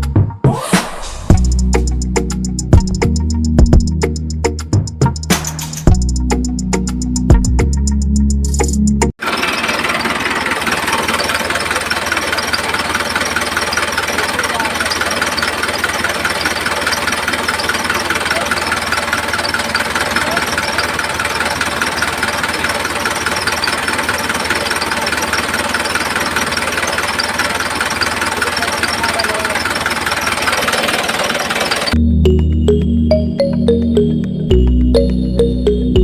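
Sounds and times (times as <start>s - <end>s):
small engine chugging: 9.2s - 32.0s.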